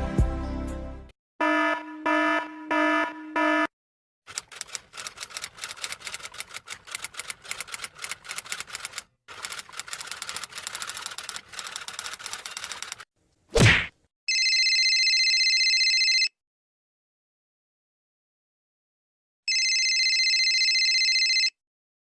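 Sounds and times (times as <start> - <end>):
rapid typing clicks: 4.3 - 13.0.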